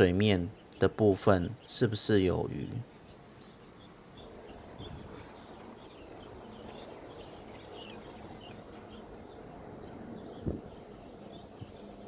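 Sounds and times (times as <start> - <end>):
low background hiss: 0.0 - 12.0
small birds chirping: 0.0 - 12.0.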